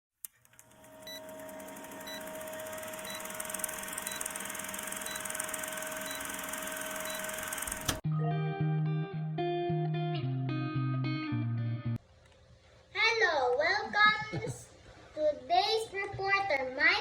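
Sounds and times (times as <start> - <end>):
short electronic beeps: 5.0 - 5.4, 6.0 - 7.4.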